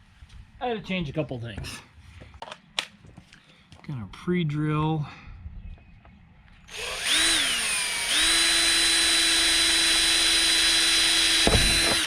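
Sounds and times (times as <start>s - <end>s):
power drill whining: 6.7s - 12.0s.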